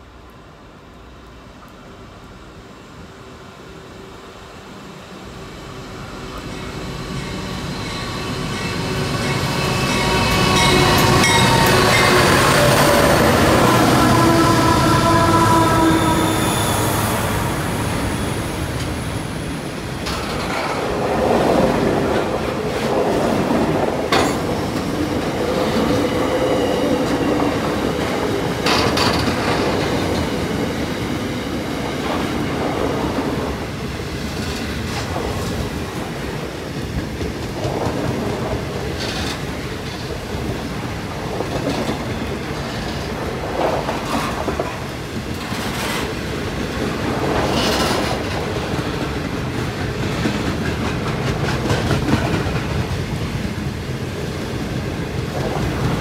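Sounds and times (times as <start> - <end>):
freight train wheels clattering: 19.9 - 26.0, 26.8 - 30.6, 46.8 - 53.6.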